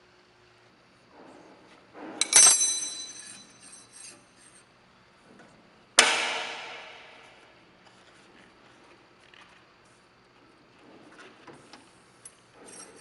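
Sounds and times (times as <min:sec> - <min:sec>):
sharp metallic clanks: 0:02.0 - 0:04.1, 0:06.0 - 0:07.4
light metallic clinks: 0:02.2 - 0:03.9.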